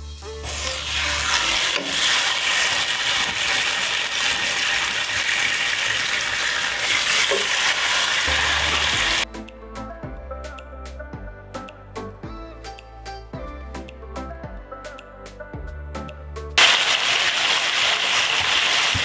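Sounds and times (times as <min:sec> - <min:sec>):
food sizzling in a hot pan: 0:00.4 - 0:09.2, 0:16.6 - 0:19.0.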